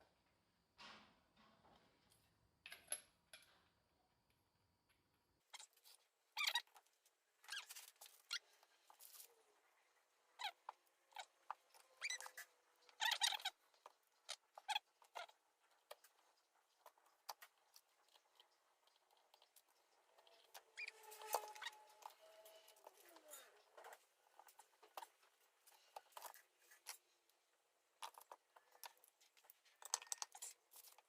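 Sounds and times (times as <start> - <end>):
metal parts squeaking: 5.5 - 6.8, 7.4 - 9.3, 10.4 - 15.4, 20.0 - 27.0.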